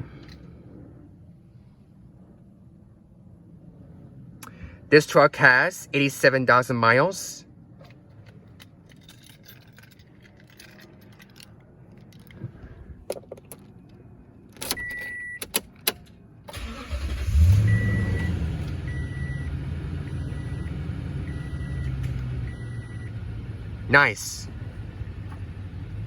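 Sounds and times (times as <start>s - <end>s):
keys jangling in ignition: 7.8s - 17.3s
engine cranking and idling: 14.5s - 23.9s
dashboard warning chime beeping: 14.6s - 15.6s, 16.6s - 23.2s.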